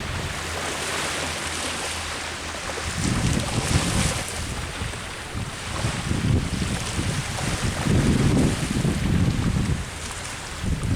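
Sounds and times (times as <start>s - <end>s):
sea waves washing ashore: 0.0s - 10.9s
wind gusting on microphone: 2.6s - 10.9s.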